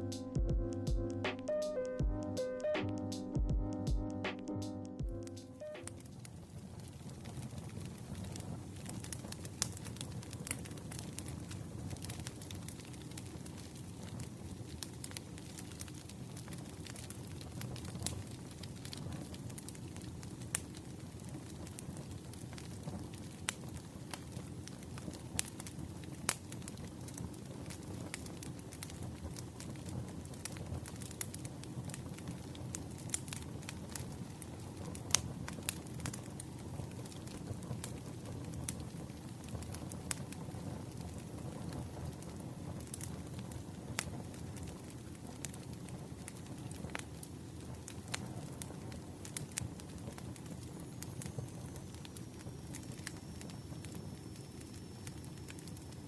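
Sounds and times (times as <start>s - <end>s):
firewood crackling: 5.0s - 56.0s
low rumble of flames: 5.0s - 56.0s.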